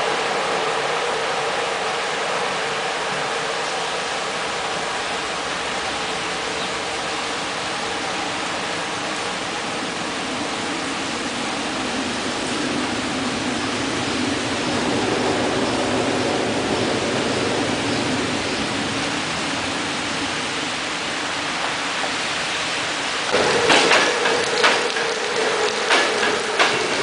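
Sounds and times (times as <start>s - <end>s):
rain hissing: 0.0s - 27.0s
train rumbling: 0.0s - 27.0s
train wheels clacking on rail joints: 21.5s - 27.0s.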